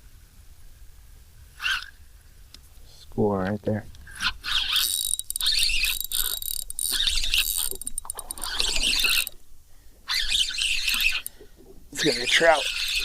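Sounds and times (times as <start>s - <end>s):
fishing reel whirring: 1.6s - 2.0s, 4.1s - 9.4s, 10.1s - 11.4s, 12.0s - 13.0s.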